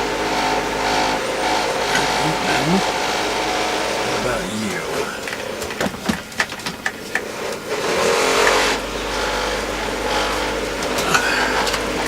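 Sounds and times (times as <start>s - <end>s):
cordless drill running: 4.9s - 12.0s.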